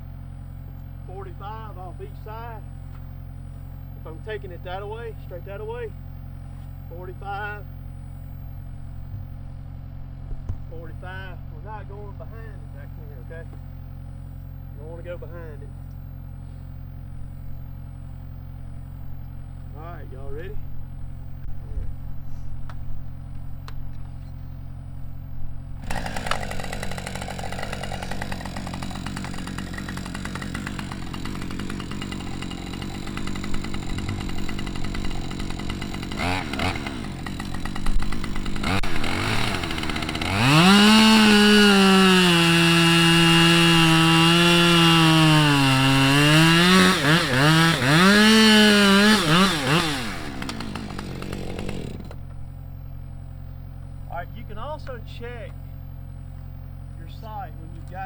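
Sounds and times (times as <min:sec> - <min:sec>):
chainsaw cutting tree: 0:25.8 - 0:52.4.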